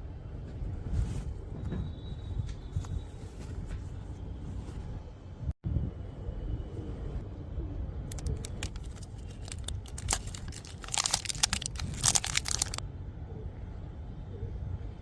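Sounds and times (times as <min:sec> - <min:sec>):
crinkling of handled material: 0:08.1 - 0:12.8.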